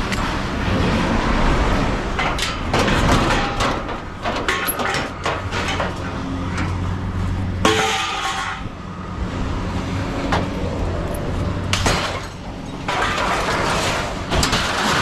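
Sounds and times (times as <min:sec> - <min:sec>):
scrap metal crashing: 0:02.0 - 0:06.8, 0:07.4 - 0:08.8, 0:11.7 - 0:15.0.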